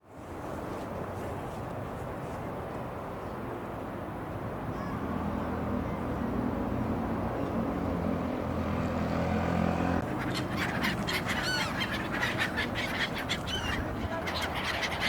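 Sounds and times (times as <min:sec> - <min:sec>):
flock of gulls calling: 0:10.0 - 0:15.0.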